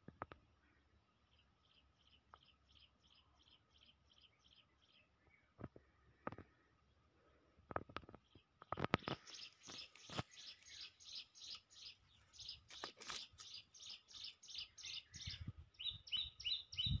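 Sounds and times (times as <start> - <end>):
bird chirping high: 9.0 - 17.0.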